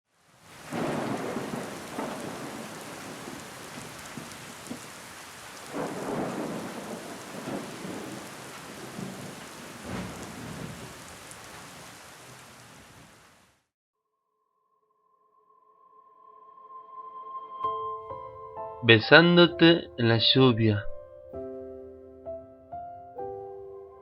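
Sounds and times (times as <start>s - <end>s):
rain falling: 0.1s - 13.7s
thunder rolling: 0.6s - 5.0s, 5.6s - 11.7s.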